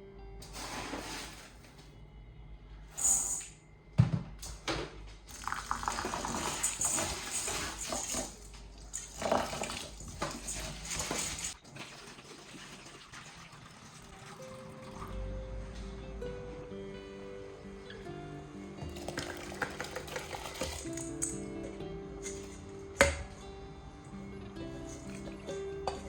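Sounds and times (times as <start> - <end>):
tap water running into sink: 5.3 - 15.0, 19.0 - 21.4.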